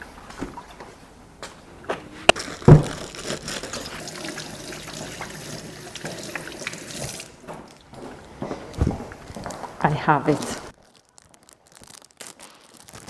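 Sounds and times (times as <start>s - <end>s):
tap water running into a glass: 3.7s - 7.4s.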